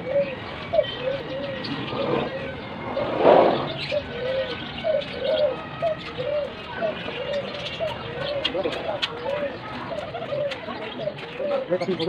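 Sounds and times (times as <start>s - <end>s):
pigeons cooing: 0.0s - 12.0s
rushing noise: 1.8s - 4.0s.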